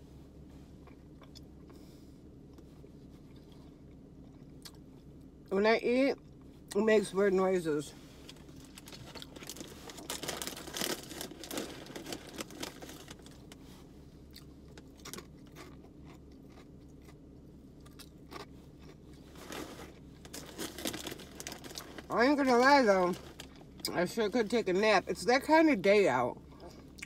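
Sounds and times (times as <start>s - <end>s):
low steady hum: 0.0s - 27.0s
person chewing crunchy snack: 0.7s - 5.1s, 14.2s - 22.1s
wrapper crinkling: 8.3s - 13.6s, 19.4s - 23.6s.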